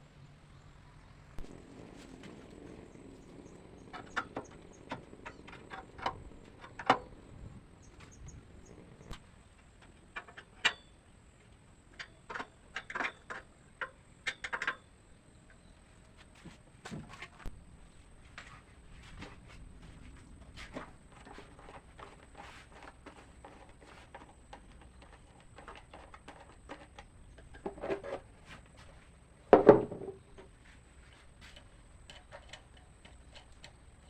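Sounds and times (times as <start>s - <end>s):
loud knocks: 29.5s - 30.2s.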